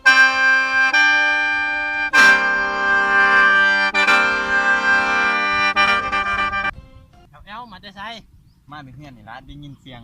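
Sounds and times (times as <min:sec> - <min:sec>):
mouth organ chords over drone: 0:00.0 - 0:06.7.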